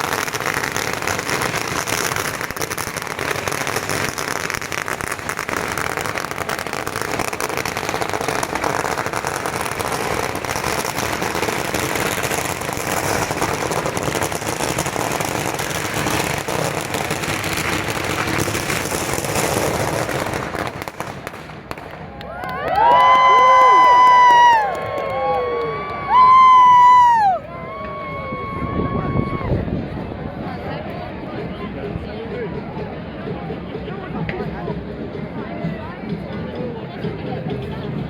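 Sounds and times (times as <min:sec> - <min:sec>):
firecrackers crackling and hissing: 0:00.0 - 0:32.1.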